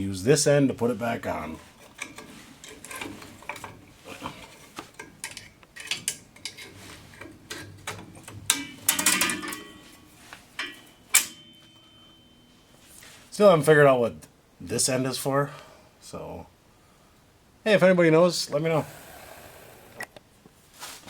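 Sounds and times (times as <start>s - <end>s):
metal brake hardware clinking: 5.0s - 12.6s
metal clank with ring: 8.5s - 12.7s.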